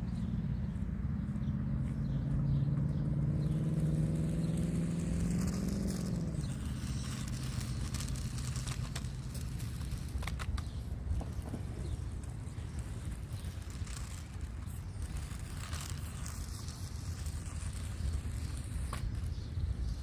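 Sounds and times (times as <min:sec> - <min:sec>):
motor hum rising in pitch: 0:00.0 - 0:08.7
wind rumble on microphone: 0:00.0 - 0:20.0.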